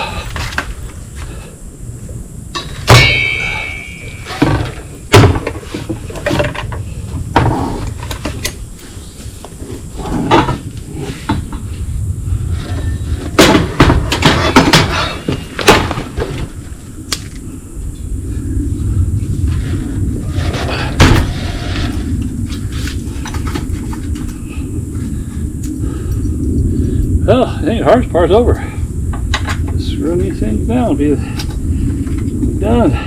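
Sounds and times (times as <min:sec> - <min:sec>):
metal clanks and knocks: 0:02.6 - 0:08.6, 0:12.6 - 0:16.5.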